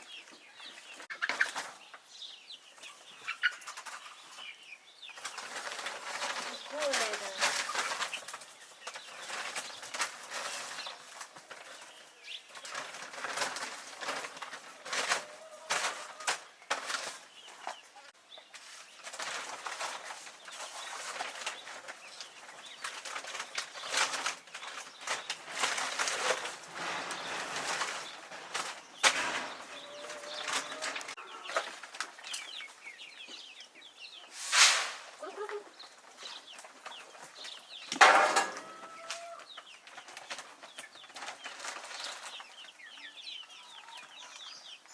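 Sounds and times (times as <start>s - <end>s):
chicks peeping: 0.0s - 44.9s
rustling knocks: 37.4s - 39.0s.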